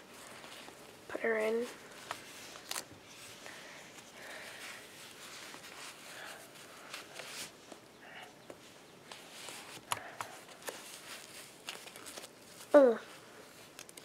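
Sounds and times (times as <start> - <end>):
diaper rustling: 9.1 - 13.9.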